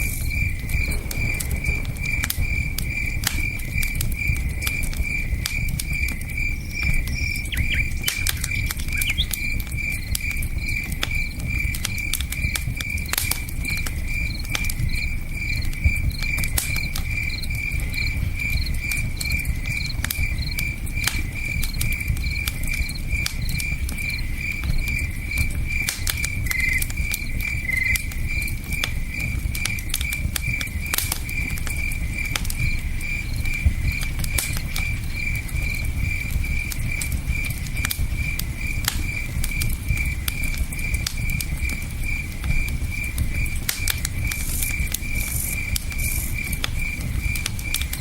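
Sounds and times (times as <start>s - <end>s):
campfire crackling: 0.0s - 48.0s
cricket chirping: 0.0s - 48.0s.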